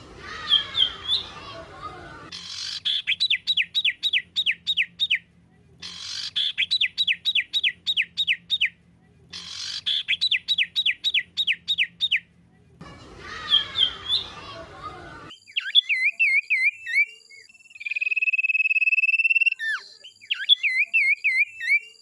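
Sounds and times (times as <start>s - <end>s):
songbird whistled call: 0.2s - 4.2s.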